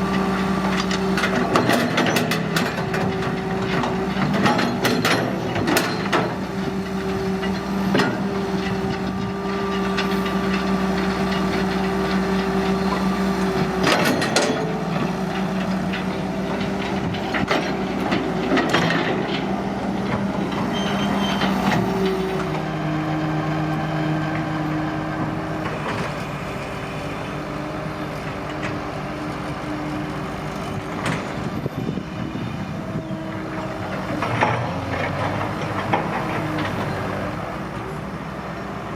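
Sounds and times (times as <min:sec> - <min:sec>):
excavator diesel engine running: 0:00.0 - 0:38.9
metal clanks and knocks: 0:00.7 - 0:12.0, 0:13.6 - 0:22.2.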